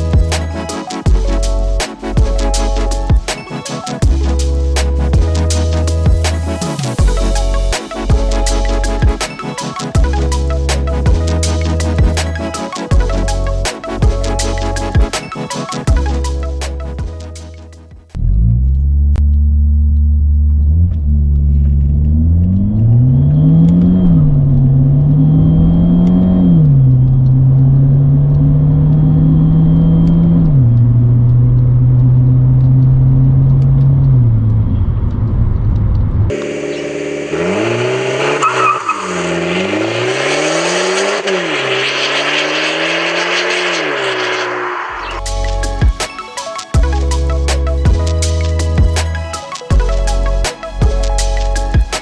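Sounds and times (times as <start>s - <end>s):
car engine accelerating with upshifts: 18.1s - 45.2s
car exhaust revving: 36.3s - 45.8s.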